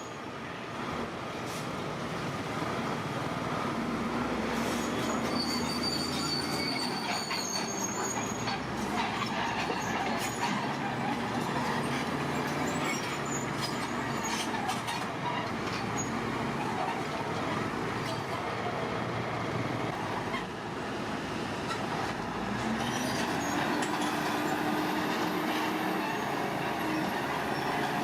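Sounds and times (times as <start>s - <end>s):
crawler tracks squealing and clanking: 4.5s - 18.8s, 20.0s - 20.6s, 21.6s - 28.0s.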